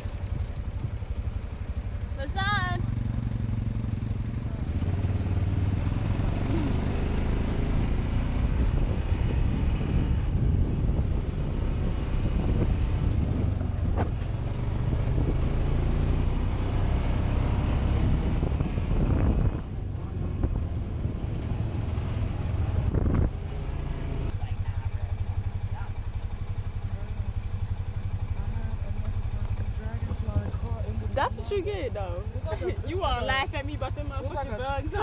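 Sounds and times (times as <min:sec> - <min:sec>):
atv engine running: 0:00.0 - 0:35.0
wind buffeting microphone: 0:07.7 - 0:15.7, 0:17.8 - 0:23.8.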